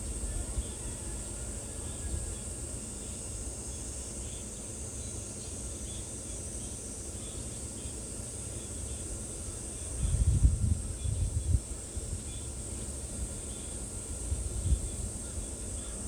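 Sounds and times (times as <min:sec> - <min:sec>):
low wind rumble: 0:10.0 - 0:11.7.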